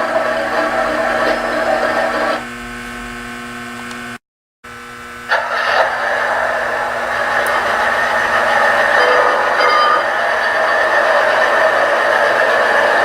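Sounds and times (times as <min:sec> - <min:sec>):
model trains whirring and humming: 0:00.0 - 0:04.1, 0:05.0 - 0:13.0.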